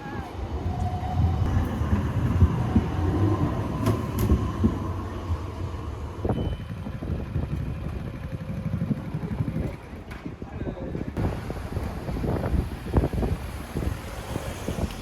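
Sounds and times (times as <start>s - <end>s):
passing road traffic: 11.2s - 15.0s.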